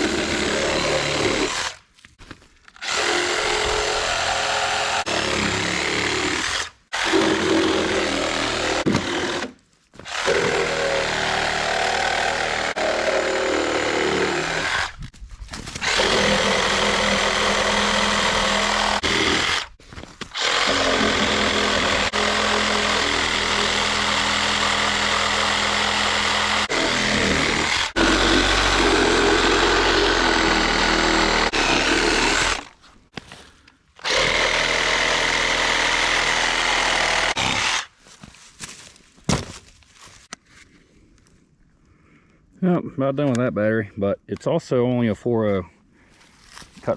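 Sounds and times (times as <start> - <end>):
chainsaw cutting through log: 0.0 - 1.8, 2.8 - 15.0, 15.8 - 32.8, 34.0 - 37.9.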